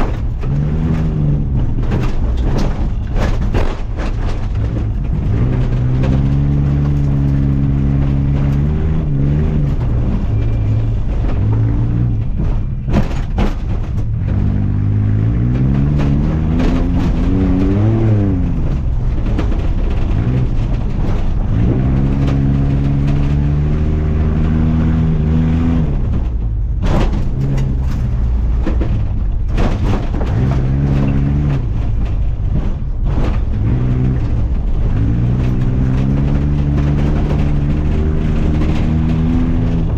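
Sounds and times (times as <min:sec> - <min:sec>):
truck engine revving: 0:00.0 - 0:39.9
sharp knocks: 0:11.1 - 0:14.7.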